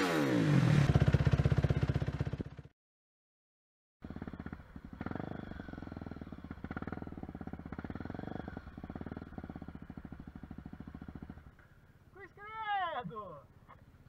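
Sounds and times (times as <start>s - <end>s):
motorcycle engine idling: 0.9s - 2.7s, 4.0s - 12.1s.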